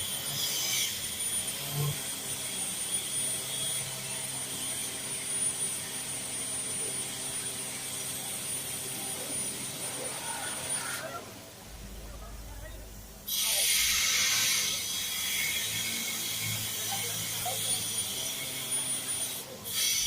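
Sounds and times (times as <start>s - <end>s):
engine running steadily: 0.0s - 13.3s
steady hiss: 11.6s - 17.4s.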